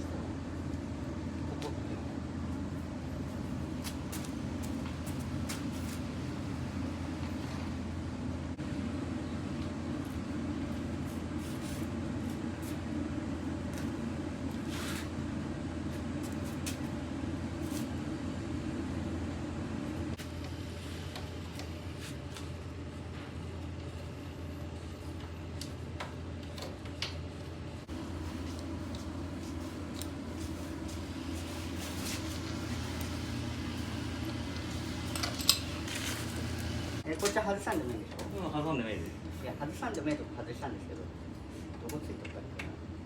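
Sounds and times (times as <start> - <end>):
belt conveyor humming: 27.6 - 37.6.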